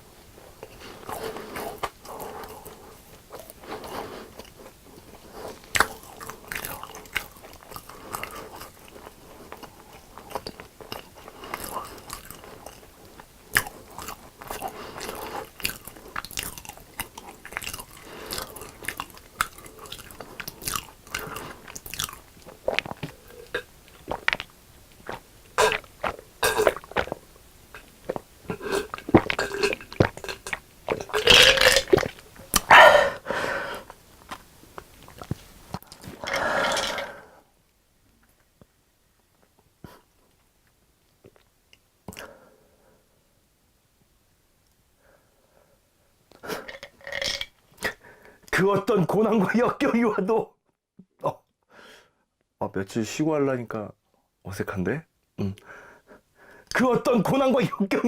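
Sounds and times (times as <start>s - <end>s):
chewing crisp fried food: 0.4s - 37.0s.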